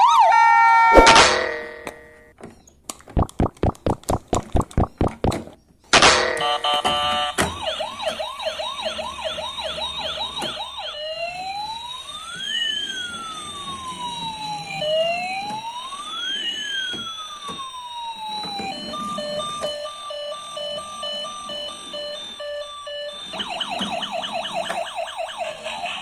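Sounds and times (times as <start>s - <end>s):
toy electronic siren: 0.0s - 2.3s, 6.3s - 26.0s
beeping electronic tune: 3.2s - 5.4s, 23.3s - 26.0s.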